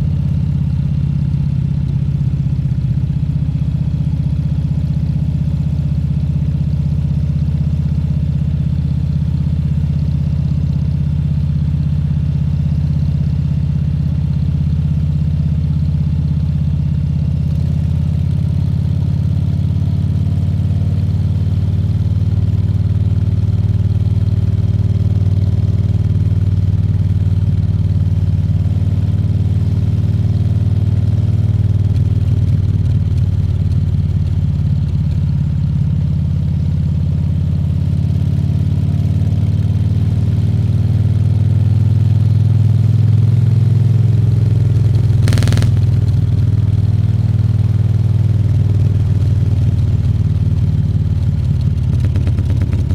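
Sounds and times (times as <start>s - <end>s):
motorcycle engine running: 42.9s - 52.9s.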